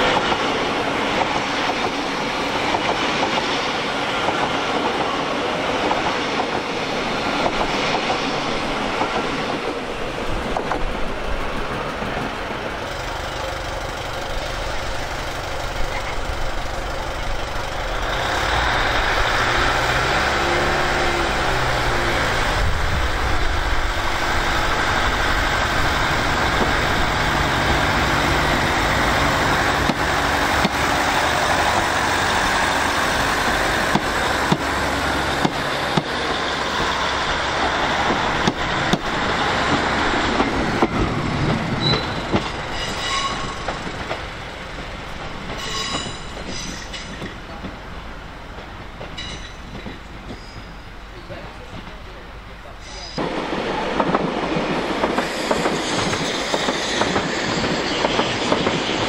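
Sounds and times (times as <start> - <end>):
train rumbling: 0.0 - 59.0
short high squeaks: 41.8 - 43.7.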